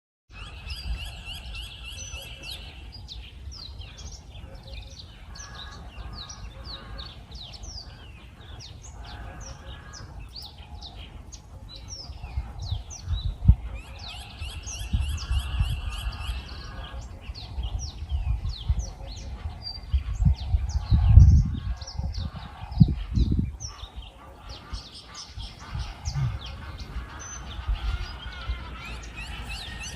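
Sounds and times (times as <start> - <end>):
birds chirping: 0.3 - 29.9.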